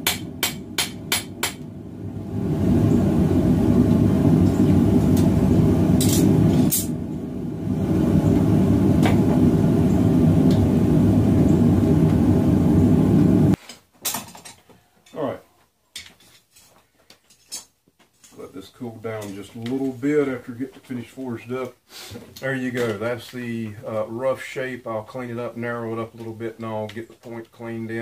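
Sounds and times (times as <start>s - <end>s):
gas burner roaring: 0.0s - 13.6s.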